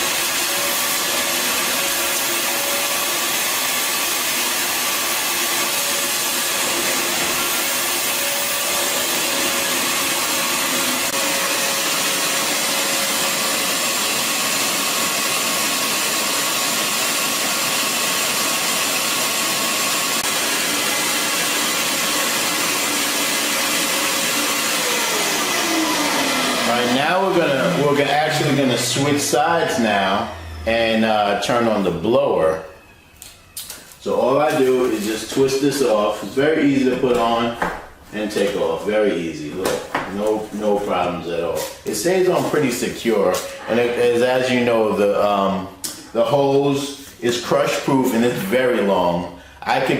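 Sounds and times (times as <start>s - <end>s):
vacuum motor spinning down: 0.0s - 36.4s
wet dry vacuum running: 0.0s - 49.9s.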